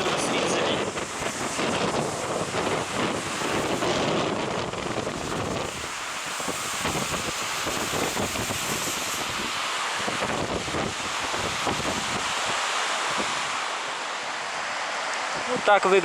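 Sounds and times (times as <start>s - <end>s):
wind buffeting microphone: 0.0s - 15.8s
stormy sea surf: 0.0s - 16.0s.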